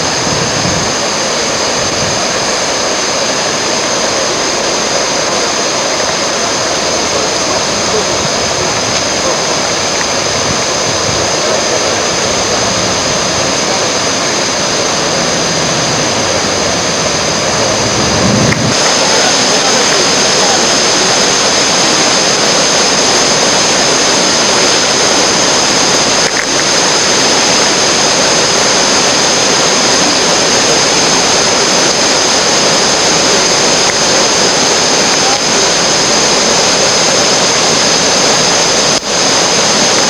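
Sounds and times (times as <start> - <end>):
whitewater rushing: 0.0 - 40.0.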